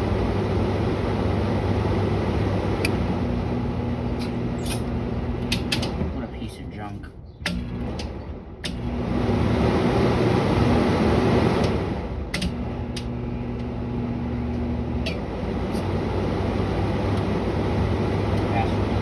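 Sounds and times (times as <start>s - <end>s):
air conditioner running: 0.0s - 19.0s
air conditioner clicks: 2.8s - 3.1s, 4.1s - 6.1s, 7.4s - 8.9s, 11.6s - 13.8s, 14.5s - 15.9s.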